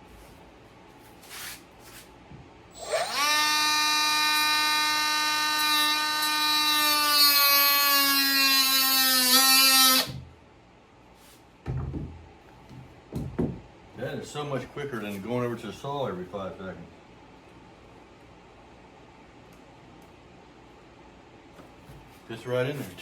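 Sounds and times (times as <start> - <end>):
power tool whining: 2.7 - 10.2.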